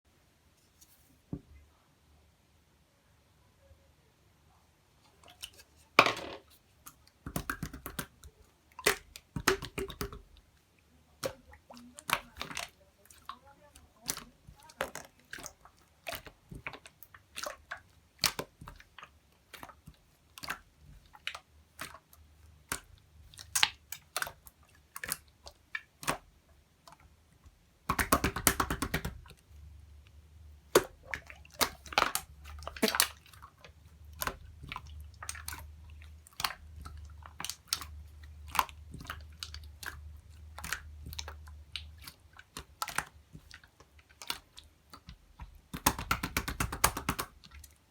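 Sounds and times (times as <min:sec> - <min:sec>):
slime wet clicks and pops: 0:07.2 - 0:10.3, 0:14.1 - 0:24.4, 0:25.0 - 0:26.3, 0:27.8 - 0:29.4, 0:30.7 - 0:35.7, 0:36.3 - 0:47.6.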